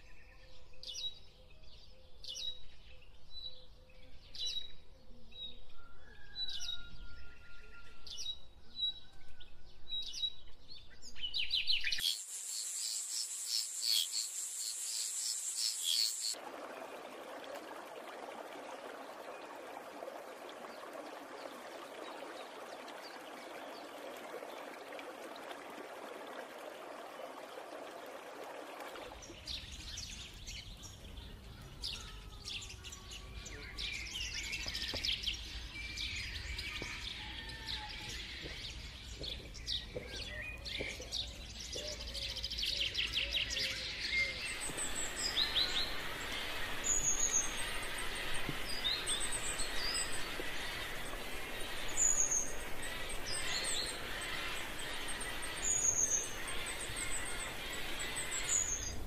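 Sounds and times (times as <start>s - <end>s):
small birds chirping: 11.2s - 16.4s, 29.2s - 59.0s
insect trills: 12.0s - 16.4s
steady hiss: 12.0s - 16.4s, 44.5s - 59.0s.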